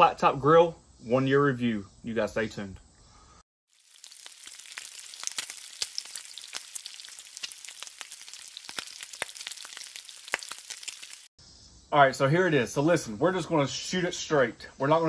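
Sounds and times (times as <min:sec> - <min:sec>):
crackles and pops: 0:03.7 - 0:11.3
food sizzling on griddle: 0:03.7 - 0:11.3.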